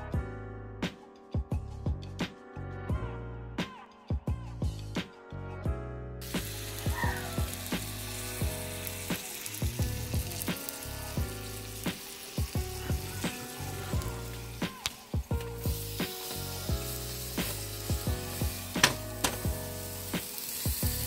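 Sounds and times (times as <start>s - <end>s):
background music with steady beat: 0.0s - 21.0s
sandwich sizzling in a pan: 6.2s - 21.0s.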